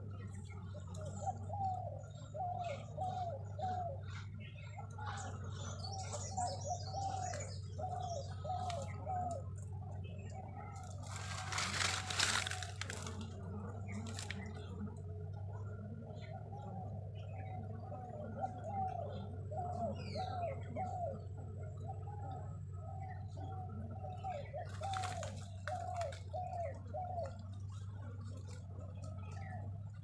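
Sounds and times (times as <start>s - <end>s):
bird calling: 0.0s - 14.8s, 15.6s - 28.4s
steady low hum: 0.0s - 30.0s
rustling noise: 11.0s - 13.2s.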